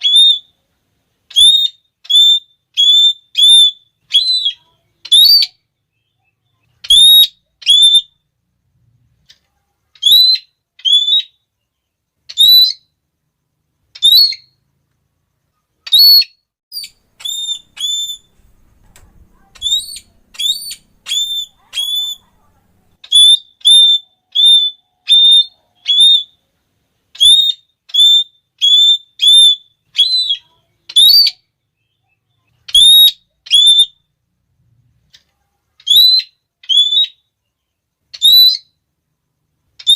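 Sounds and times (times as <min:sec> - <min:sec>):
parrot shrill calls: 0:00.0 - 0:00.5, 0:01.3 - 0:05.6, 0:06.8 - 0:08.2, 0:10.0 - 0:11.4, 0:12.3 - 0:12.9, 0:13.9 - 0:14.6, 0:15.8 - 0:26.4, 0:27.1 - 0:31.5, 0:32.6 - 0:34.0, 0:35.8 - 0:37.3, 0:38.1 - 0:38.8.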